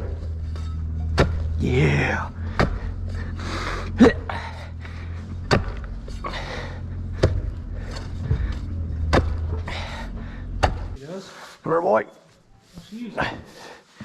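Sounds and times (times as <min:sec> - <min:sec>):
steady low hum: 0:00.0 - 0:11.0
sharp knocks: 0:05.4 - 0:06.0, 0:07.2 - 0:09.7, 0:10.6 - 0:11.0.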